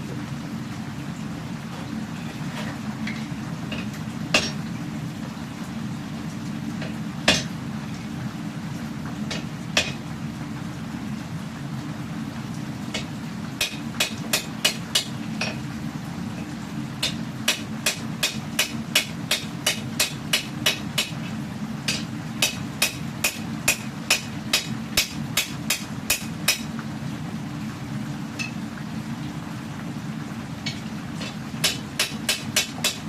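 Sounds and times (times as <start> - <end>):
gas forge roaring: 0.0 - 33.0
hammer striking steel on anvil: 4.4 - 4.6, 9.3 - 10.0, 17.0 - 21.2, 21.9 - 26.7, 31.2 - 33.0.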